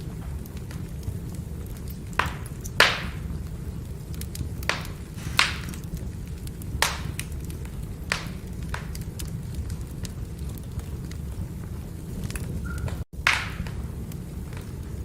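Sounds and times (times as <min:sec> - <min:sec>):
firewood crackling: 0:00.0 - 0:15.0
low rumble of fire: 0:00.0 - 0:15.0
sharp pops of firewood: 0:04.7 - 0:05.9, 0:06.8 - 0:07.3, 0:13.2 - 0:13.8.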